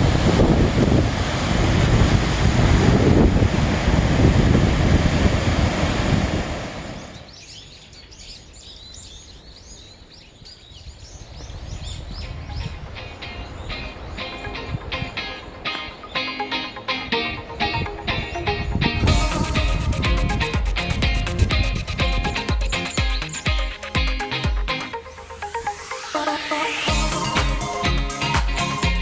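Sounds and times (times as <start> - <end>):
sea waves washing: 0.0 - 7.3, 11.3 - 29.0
wind buffeting microphone: 0.0 - 7.3, 10.8 - 15.6, 17.6 - 23.0
music: 12.2 - 29.0
faint high repeated sounds: 12.3 - 29.0.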